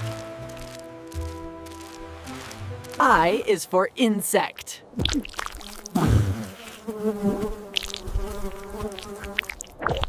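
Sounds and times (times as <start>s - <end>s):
cartoon insect buzzing: 5.2s - 9.7s.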